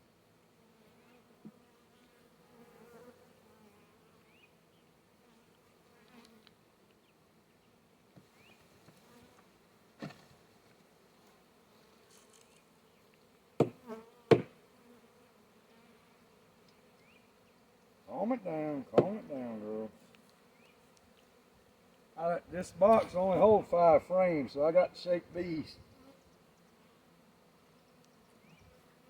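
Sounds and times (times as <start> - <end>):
bee swarm buzzing: 0.7 - 4.6, 10.8 - 29.0
sharp knocks: 13.6 - 14.5.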